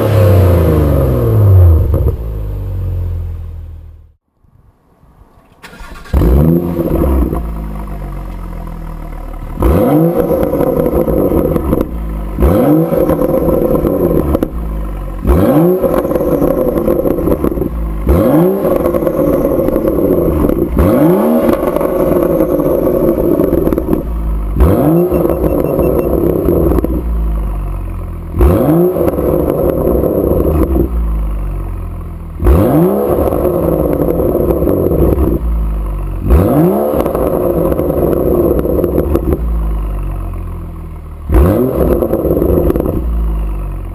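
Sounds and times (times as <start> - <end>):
car engine revving: 0.0 - 3.9, 5.6 - 31.1, 32.3 - 40.5, 41.3 - 43.7
car engine idling: 5.2 - 28.4, 37.1 - 41.4.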